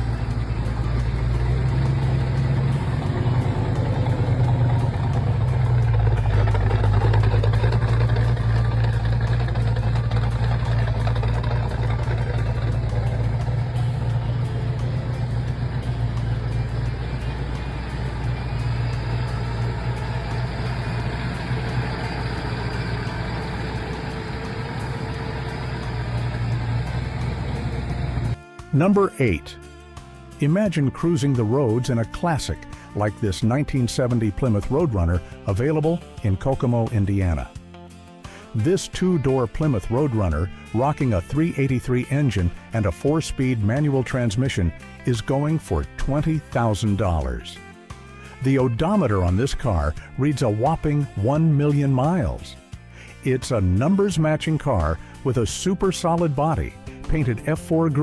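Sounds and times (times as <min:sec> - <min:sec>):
car engine idling: 0:00.0 - 0:28.4.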